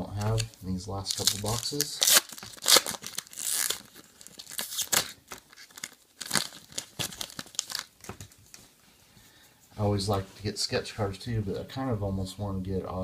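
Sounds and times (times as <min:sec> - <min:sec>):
card pack wrapper tearing: 0:00.0 - 0:08.1.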